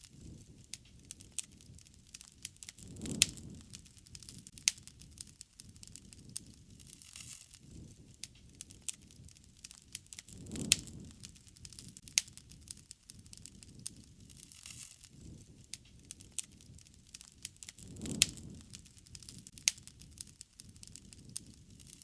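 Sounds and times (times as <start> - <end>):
wood fire crackling: 0.0 - 22.0
low rush: 17.8 - 19.4.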